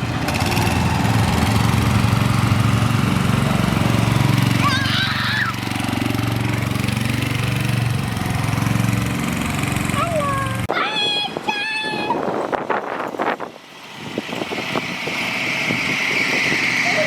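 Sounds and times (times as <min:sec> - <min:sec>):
small engine chugging: 0:00.0 - 0:10.7.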